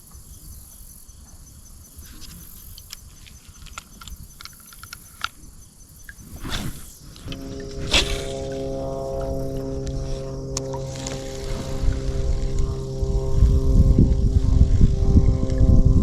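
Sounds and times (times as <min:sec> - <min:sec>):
crickets and insects chirping: 0:00.0 - 0:16.0
small clicks and ticks: 0:02.0 - 0:06.3
brief whoosh: 0:06.3 - 0:13.6
faint low rumble: 0:06.9 - 0:16.0.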